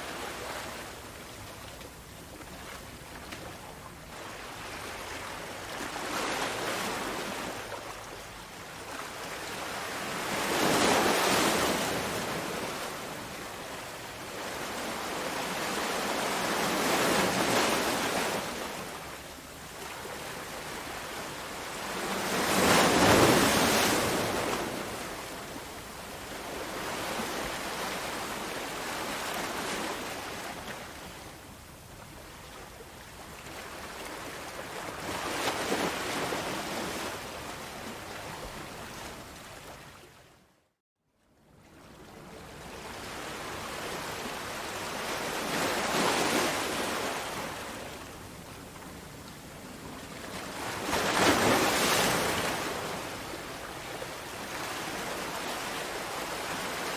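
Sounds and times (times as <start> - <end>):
sea waves breaking on shore: 4.1 - 8.2, 8.8 - 31.3, 42.7 - 48.1, 49.7 - 56.9.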